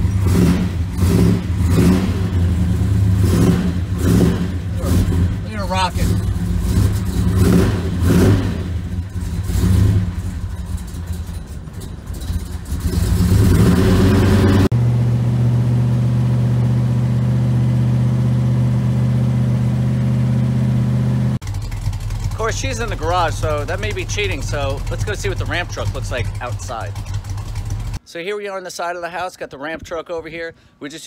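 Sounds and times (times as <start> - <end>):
car engine revving and idling: 0.0 - 28.0.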